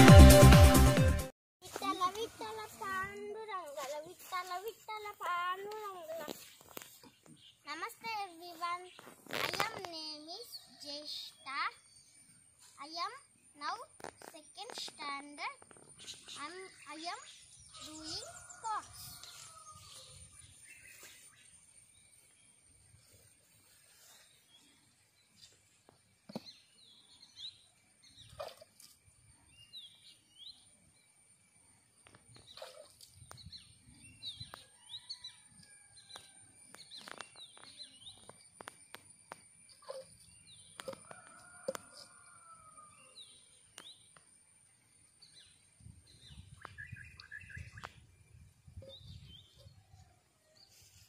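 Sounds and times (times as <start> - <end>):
lower whistled bird notes: 45.3 - 49.9.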